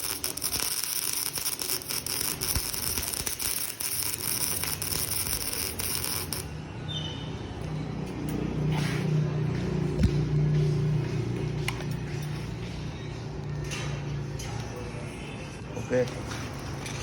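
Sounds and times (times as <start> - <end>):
arc welding crackling: 0.0 - 6.6.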